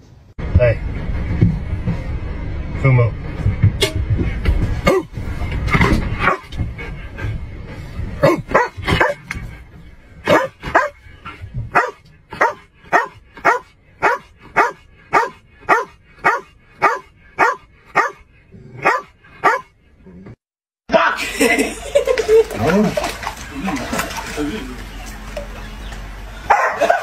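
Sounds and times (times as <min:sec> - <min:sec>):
dog barking: 0:06.2 - 0:06.5, 0:08.2 - 0:09.2, 0:10.3 - 0:11.0, 0:11.7 - 0:18.2, 0:18.8 - 0:19.7, 0:26.5 - 0:27.0.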